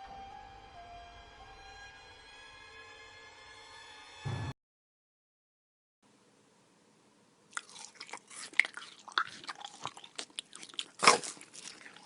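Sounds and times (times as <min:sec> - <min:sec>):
crunchy chewing: 0:07.5 - 0:12.0.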